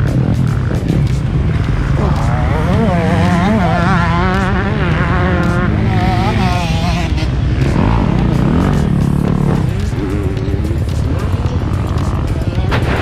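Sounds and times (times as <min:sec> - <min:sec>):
motocross bike engine revving: 0:00.0 - 0:13.0.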